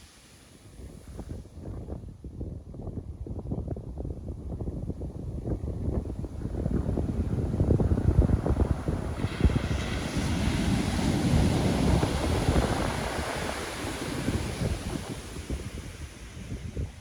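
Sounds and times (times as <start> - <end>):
wave breaking and washing in: 0.0 - 1.4, 5.9 - 17.0
wind buffeting microphone: 0.0 - 17.0.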